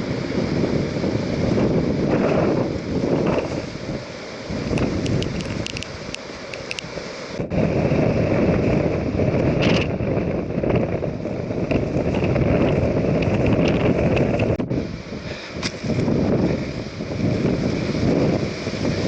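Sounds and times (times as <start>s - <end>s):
wind buffeting microphone: 0.0s - 19.0s
faint sharp ticks: 4.7s - 6.9s.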